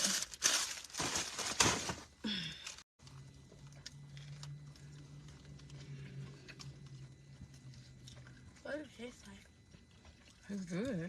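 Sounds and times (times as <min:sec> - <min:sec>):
paper crinkling: 0:00.0 - 0:02.2
low hum: 0:03.0 - 0:10.4.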